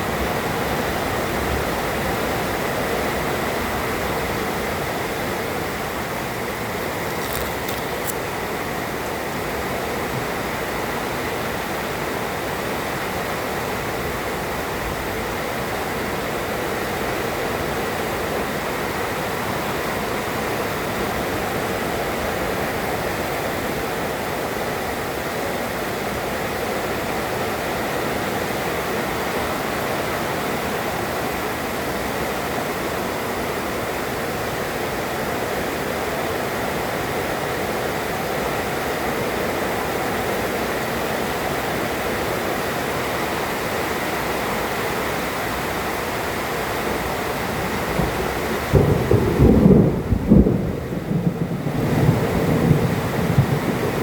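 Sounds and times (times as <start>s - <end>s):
heavy rain pouring: 4.3s - 8.3s, 28.4s - 54.0s.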